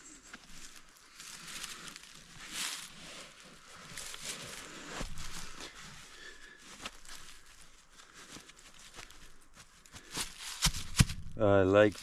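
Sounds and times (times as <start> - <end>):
boots being pulled on: 0.2 - 12.0
low thump: 10.8 - 11.4.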